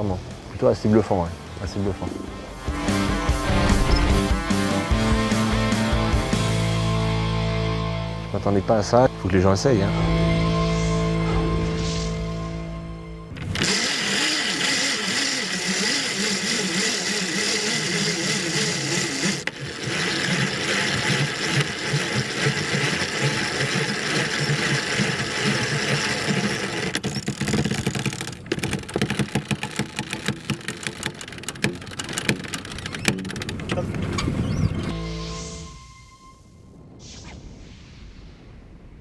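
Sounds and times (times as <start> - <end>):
winch whirring: 10.0 - 36.0
rapid winch clicks: 13.4 - 33.8.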